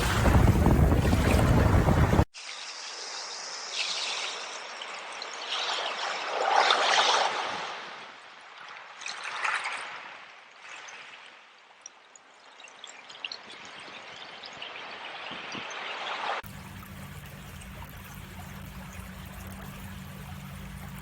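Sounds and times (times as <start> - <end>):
surf and wind noise: 0.0 - 11.5, 13.6 - 16.4
stream water trickling: 0.0 - 21.0.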